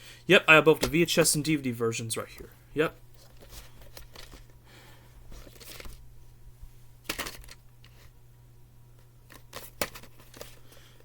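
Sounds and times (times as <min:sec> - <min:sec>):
low electrical hum: 0:00.0 - 0:11.0
plastic cases rustling and scraping: 0:03.1 - 0:04.6, 0:05.2 - 0:06.1, 0:07.0 - 0:08.2, 0:09.2 - 0:11.0.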